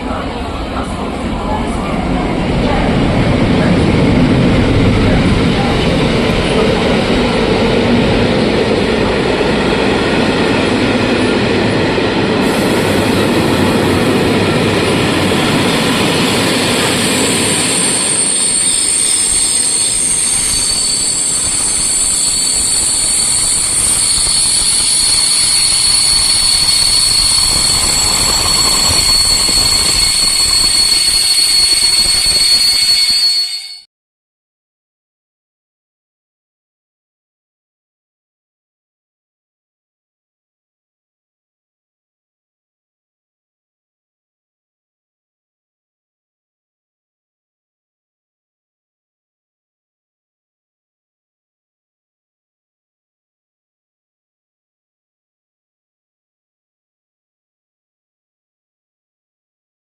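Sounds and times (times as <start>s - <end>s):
train rumbling: 0.0s - 33.8s
metallic wheel squeal: 14.8s - 33.9s.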